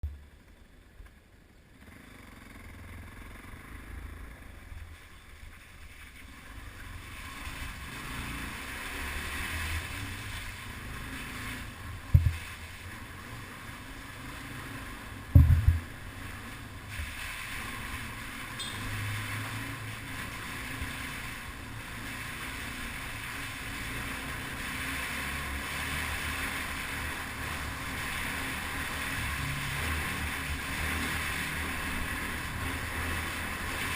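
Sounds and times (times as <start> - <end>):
motorbike engine rumble: 0.0 - 33.9
wind on microphone: 12.1 - 12.4, 15.3 - 15.9
heavy knocks: 15.4 - 15.9.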